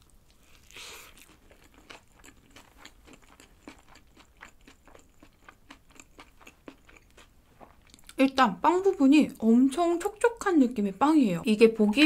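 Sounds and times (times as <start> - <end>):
chewing mouth clicks: 0.4 - 8.2.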